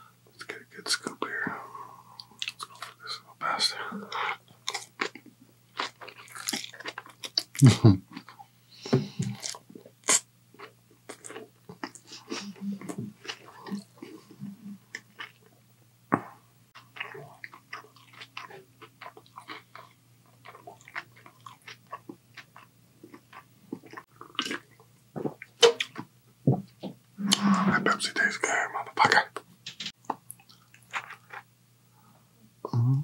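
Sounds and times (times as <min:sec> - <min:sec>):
person chewing noodles: 0:04.1 - 0:08.4, 0:09.2 - 0:15.4, 0:16.8 - 0:26.0, 0:30.0 - 0:31.5
mouth clicks and crunches: 0:04.6 - 0:08.4, 0:29.0 - 0:31.5.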